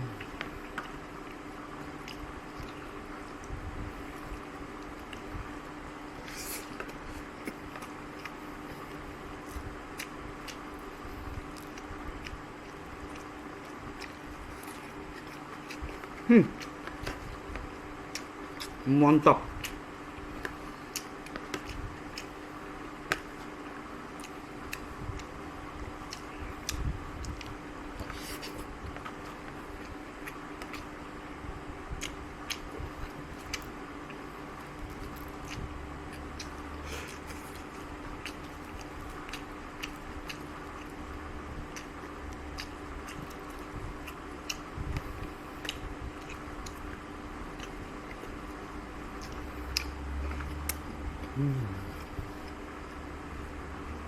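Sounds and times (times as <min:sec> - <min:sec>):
quiet chewing: 0:00.0 - 0:18.8, 0:19.6 - 0:30.9, 0:31.9 - 0:53.1
steady low hum: 0:00.0 - 0:54.0
mouth clicking sounds: 0:50.7 - 0:52.4.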